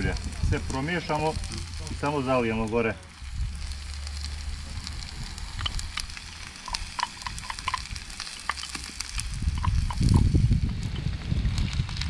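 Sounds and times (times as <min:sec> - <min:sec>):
low rumble: 0:00.0 - 0:08.2
oil popping: 0:00.0 - 0:12.0
vegetables sizzling in a wok: 0:00.0 - 0:12.0.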